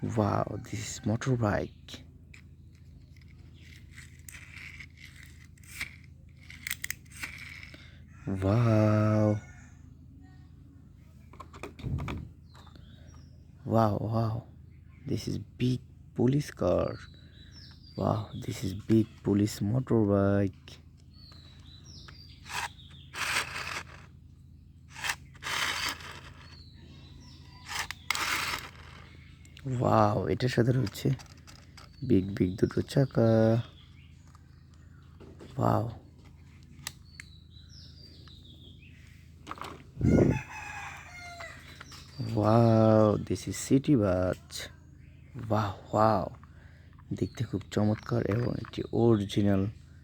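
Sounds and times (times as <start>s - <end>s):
steady low hum: 0.0s - 50.0s
plastic toy clicks and scrapes: 2.7s - 7.8s, 22.4s - 24.1s, 24.9s - 26.6s, 27.6s - 29.1s, 30.8s - 32.1s.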